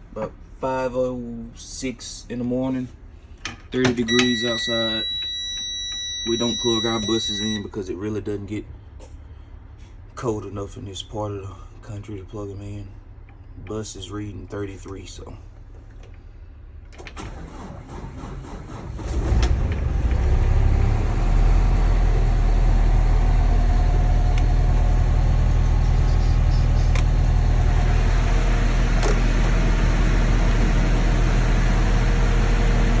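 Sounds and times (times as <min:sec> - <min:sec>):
diesel engine starting and idling: 0:16.8 - 0:33.0.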